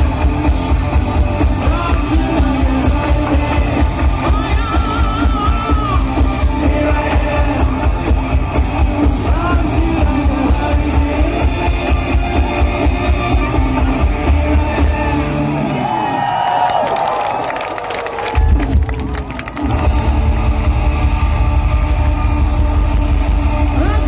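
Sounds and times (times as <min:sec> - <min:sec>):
heavy drum beat: 0:00.0 - 0:15.3
hard rock band playing: 0:00.0 - 0:16.1, 0:18.4 - 0:24.0.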